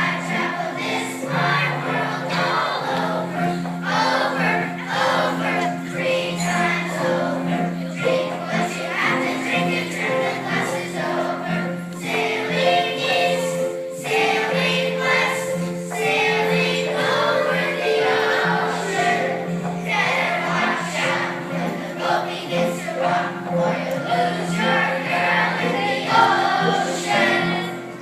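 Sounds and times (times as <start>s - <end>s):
children's choir singing: 0.0s - 28.0s.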